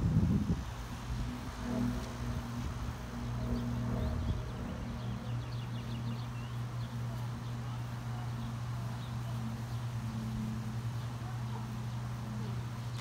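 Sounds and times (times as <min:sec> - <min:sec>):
steady low hum: 0:00.0 - 0:13.0
small birds chirping: 0:03.3 - 0:13.0.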